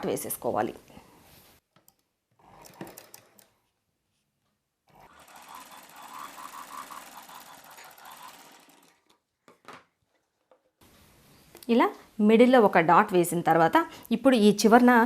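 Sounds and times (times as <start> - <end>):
sewing machine stitching: 2.4 - 3.6, 4.9 - 9.2.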